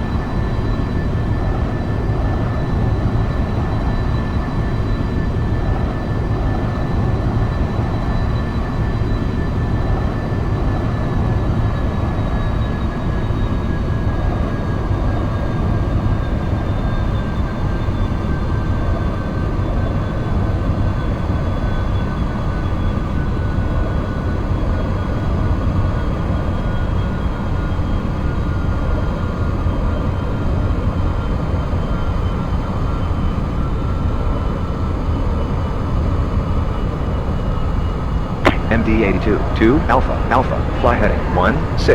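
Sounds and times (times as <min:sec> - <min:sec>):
jet engines rumbling: 0:38.4 - 0:41.9.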